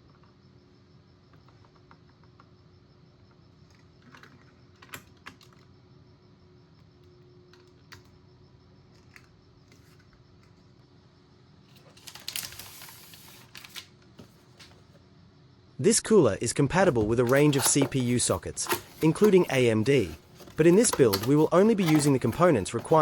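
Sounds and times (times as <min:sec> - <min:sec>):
small parts clicking and tapping: 0:17.1 - 0:23.0.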